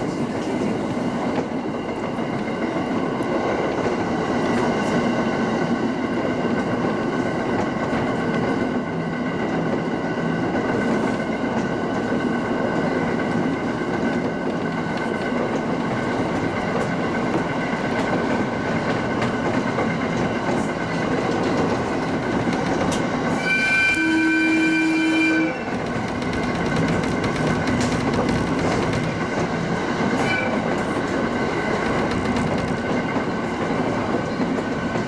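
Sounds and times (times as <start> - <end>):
train rolling on track: 0.0 - 35.0
train horn: 23.3 - 25.8, 30.2 - 30.8.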